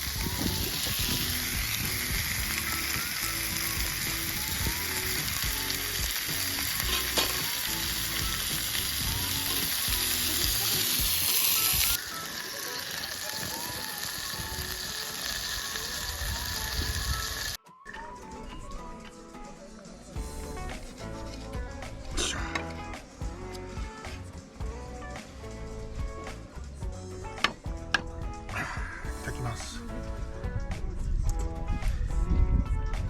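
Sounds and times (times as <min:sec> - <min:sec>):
food sizzling in a pan: 0:00.0 - 0:17.6
light background melody: 0:00.0 - 0:33.0.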